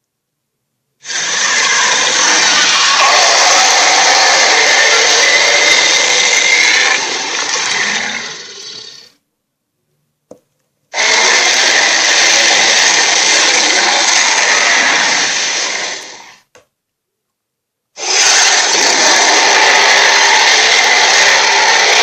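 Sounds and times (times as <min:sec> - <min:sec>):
cartoon monster roar: 0:01.0 - 0:09.2, 0:11.0 - 0:16.4, 0:18.0 - 0:22.0.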